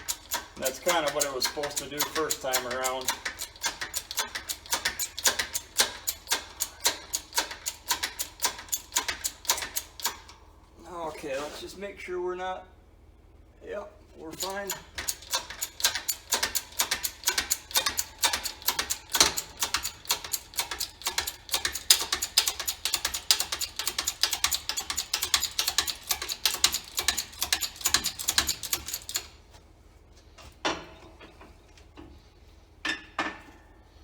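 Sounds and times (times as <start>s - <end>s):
rapid ratchet clicking: 0.0s - 10.3s, 14.4s - 29.4s.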